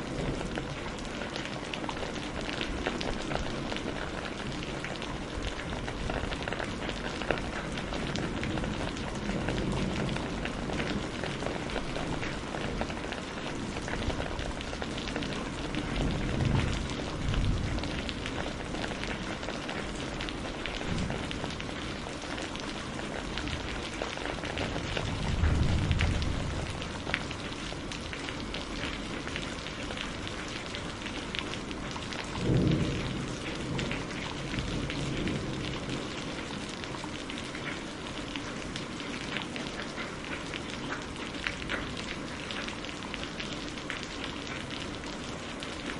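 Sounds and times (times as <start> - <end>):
low rumbles of thunder: 0.0 - 37.4
rain pattering: 0.0 - 45.9.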